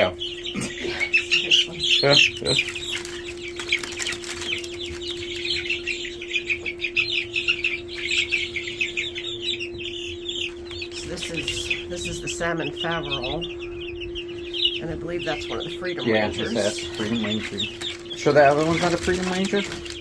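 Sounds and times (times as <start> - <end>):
chicks peeping: 0.0 - 20.0
steady low hum: 0.0 - 20.0.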